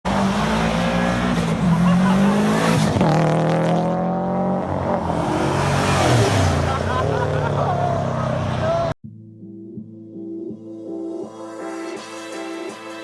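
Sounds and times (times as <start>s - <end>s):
car engine accelerating: 0.1s - 9.0s.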